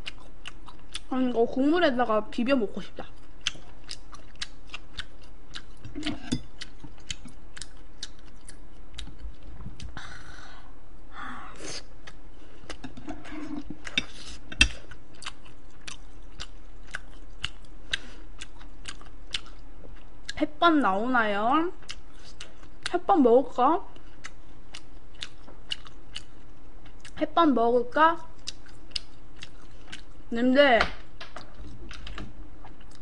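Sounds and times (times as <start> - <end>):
person chewing: 0.0 - 1.1, 3.0 - 10.0, 11.6 - 20.4, 21.8 - 22.9, 23.9 - 27.2, 28.3 - 30.3, 31.4 - 33.0.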